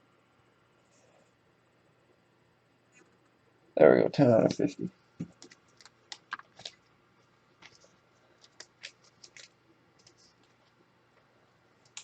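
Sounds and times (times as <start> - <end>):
trading cards clicking and scratching: 4.4 - 6.9, 7.6 - 10.8.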